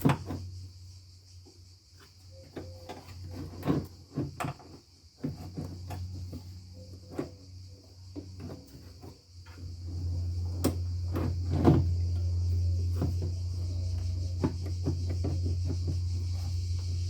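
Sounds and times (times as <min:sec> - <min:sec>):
plastic car parts clicking and clunking: 0:00.0 - 0:00.5, 0:02.4 - 0:07.4
low hum: 0:09.6 - 0:17.0.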